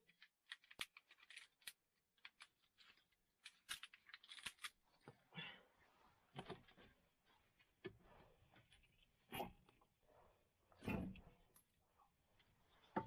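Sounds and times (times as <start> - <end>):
rustles of small objects handled: 0.0 - 10.2.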